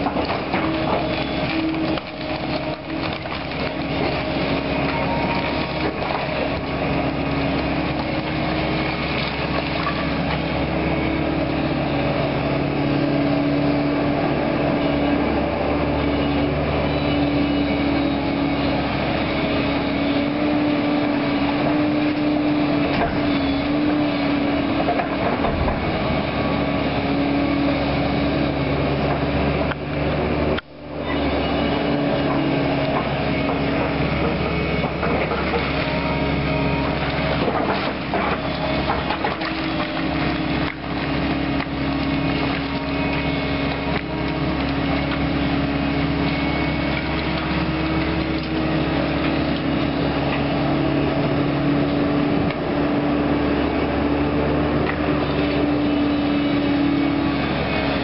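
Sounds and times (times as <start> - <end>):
wood debris cracking and crunching: 0.0 - 10.6, 32.2 - 50.5
heavy machine engine under load: 0.0 - 58.0.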